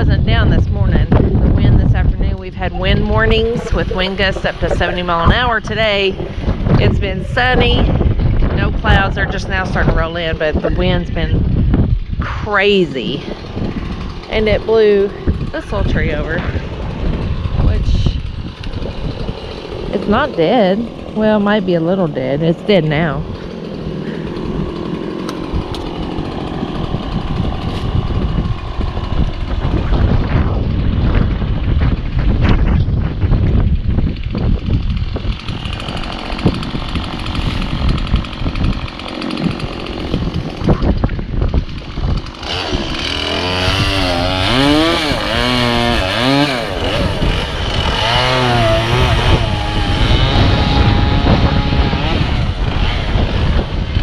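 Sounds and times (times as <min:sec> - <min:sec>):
chainsaw cutting into tree: 0:00.0 - 0:54.0
small gasoline engine running: 0:00.0 - 0:54.0
wind buffeting microphone: 0:00.0 - 0:54.0.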